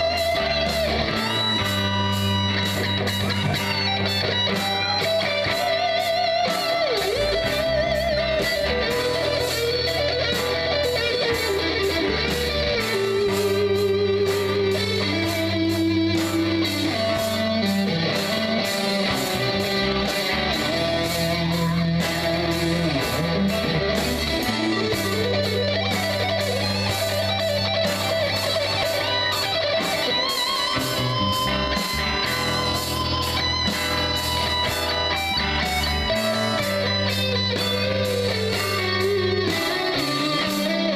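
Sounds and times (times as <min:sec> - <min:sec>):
lead guitar bent notes: 0:00.0 - 0:40.9
live rock band playing: 0:00.0 - 0:40.9.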